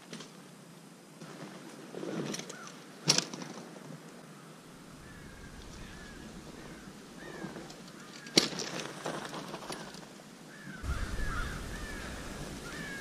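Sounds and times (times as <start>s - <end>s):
small birds chirping: 10.5s - 13.0s.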